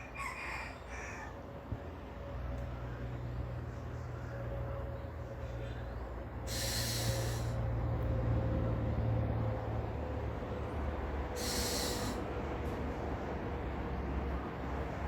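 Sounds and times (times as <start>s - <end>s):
bird harsh rasping calls: 6.5s - 7.6s, 11.4s - 12.2s.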